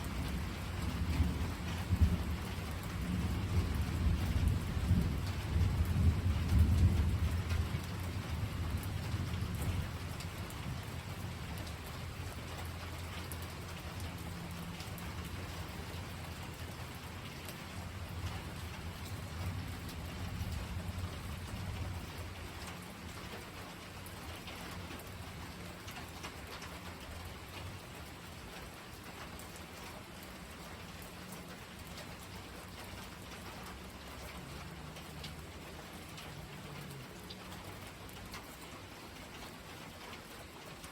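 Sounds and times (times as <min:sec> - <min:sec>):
raindrop ticks: 0:00.0 - 0:40.9
steady rain falling: 0:00.0 - 0:40.9
rolling thunder: 0:00.2 - 0:10.9.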